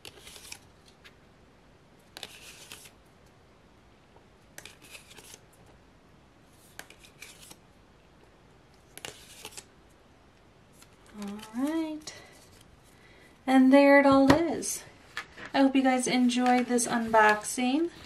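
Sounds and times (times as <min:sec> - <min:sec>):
cards flipped by hand: 0:00.0 - 0:01.2, 0:02.1 - 0:03.0, 0:04.6 - 0:05.4, 0:06.6 - 0:07.6, 0:08.8 - 0:09.7, 0:10.7 - 0:13.0.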